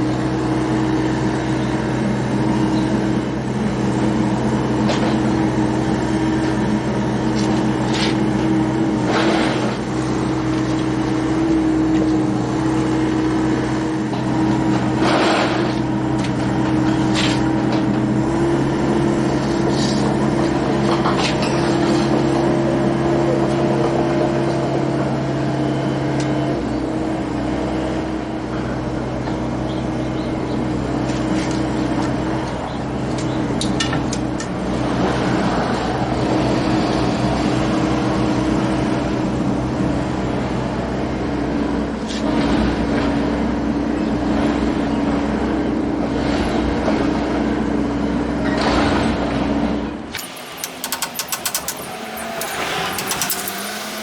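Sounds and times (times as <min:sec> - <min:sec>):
car engine running: 0:00.0 - 0:25.7, 0:50.0 - 0:54.0
light rattles and clicks: 0:50.2 - 0:54.0.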